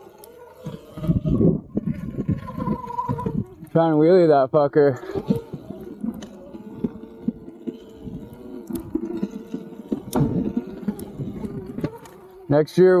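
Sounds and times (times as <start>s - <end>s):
electric motorbike motor whining: 0.0s - 13.0s.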